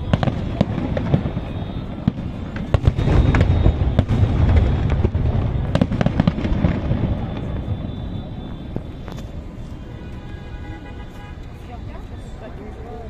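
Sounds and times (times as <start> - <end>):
sharp firework cracks: 0.0 - 9.4
fireworks bangs and crackles: 0.0 - 13.0.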